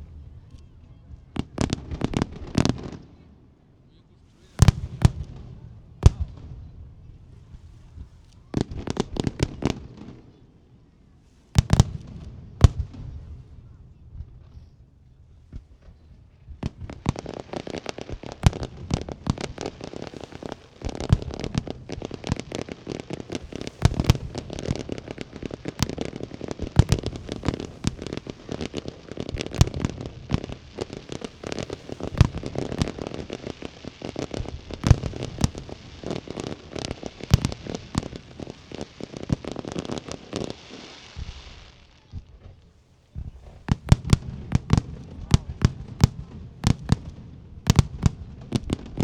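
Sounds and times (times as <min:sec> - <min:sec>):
heavy firework bangs: 0:04.4 - 0:10.4, 0:11.4 - 0:49.0
firework shell bursts and crackling: 0:15.6 - 0:42.4, 0:43.1 - 0:49.0.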